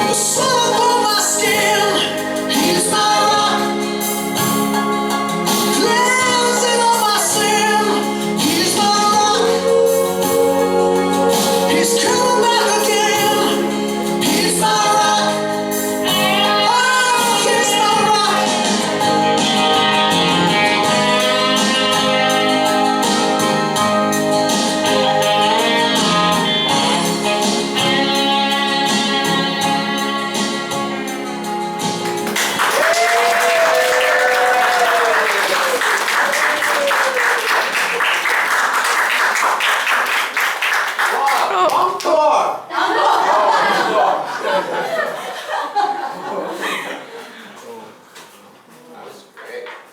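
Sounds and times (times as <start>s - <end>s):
voices singing held notes: 0.0s - 31.7s
instrumental backing: 0.0s - 36.4s
crowd applauding: 32.0s - 42.4s.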